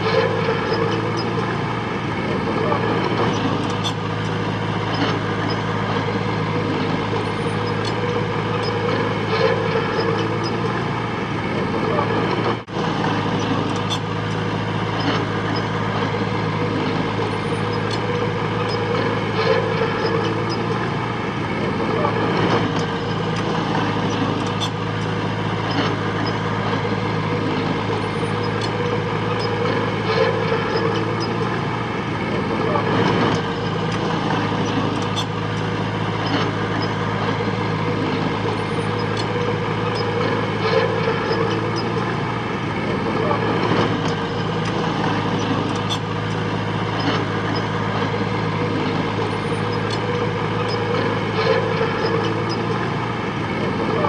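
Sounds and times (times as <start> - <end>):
diesel engine running steadily: 0.0 - 54.0.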